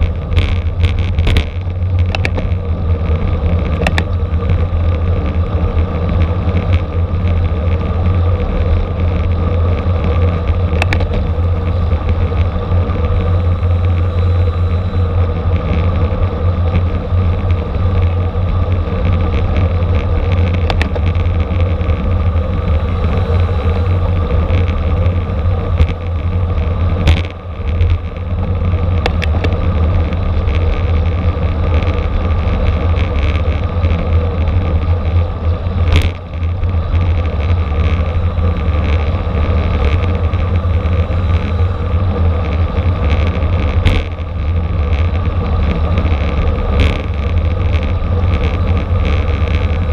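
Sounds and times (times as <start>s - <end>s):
bicycle road noise: 0.0s - 49.9s
wind rumbling on microphone: 0.0s - 49.9s.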